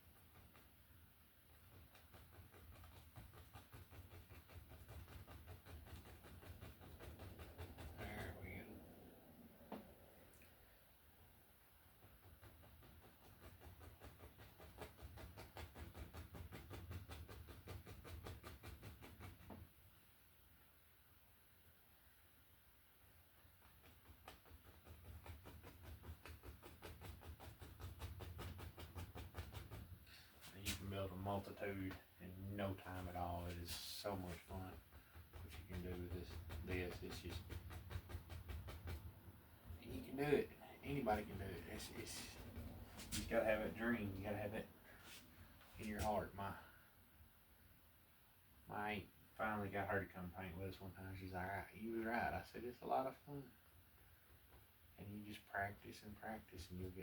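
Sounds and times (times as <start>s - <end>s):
paintbrush tapping on canvas: 32.8s - 44.2s.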